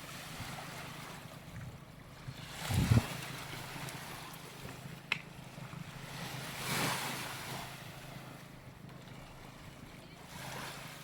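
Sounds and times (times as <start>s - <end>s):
waves washing onto sand: 0.0s - 1.3s
wind on the microphone: 1.4s - 3.4s.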